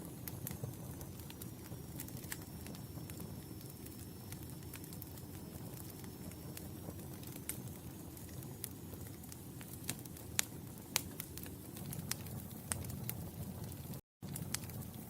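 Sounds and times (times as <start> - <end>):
fire crackling: 0.0 - 15.0
low rumble of flames: 0.0 - 15.0
sharp pops of fire: 0.0 - 15.0.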